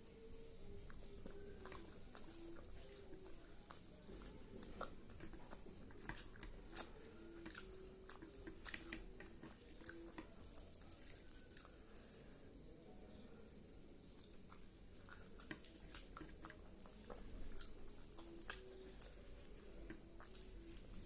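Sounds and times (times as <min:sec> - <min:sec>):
person chewing: 0:00.3 - 0:12.2, 0:14.2 - 0:21.0.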